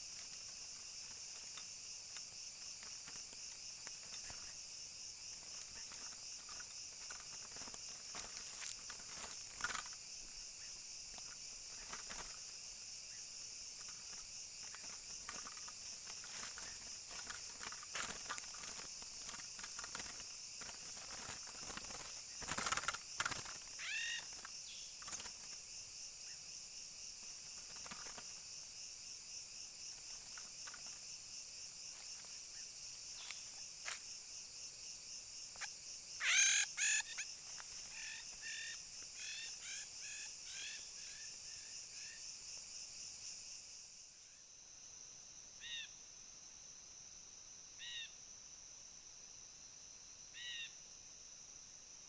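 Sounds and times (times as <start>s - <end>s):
insects trilling: 0.0s - 52.0s
bird calling: 23.7s - 24.9s, 35.6s - 41.2s.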